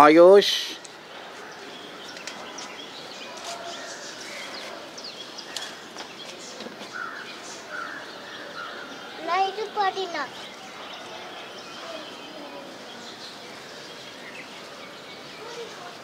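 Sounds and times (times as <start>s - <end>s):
birds chirping faintly: 0.0s - 16.0s
rustling of plants: 0.9s - 8.7s.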